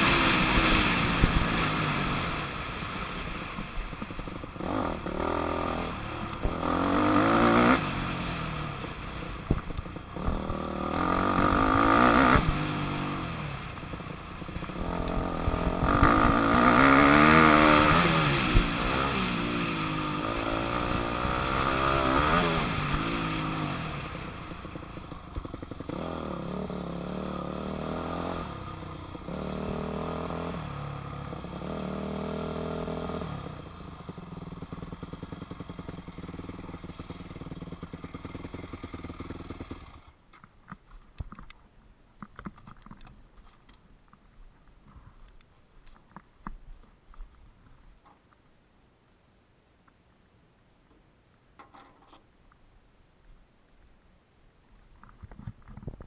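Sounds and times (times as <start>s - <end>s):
motocross engine revving: 0.0s - 3.4s, 4.6s - 33.6s.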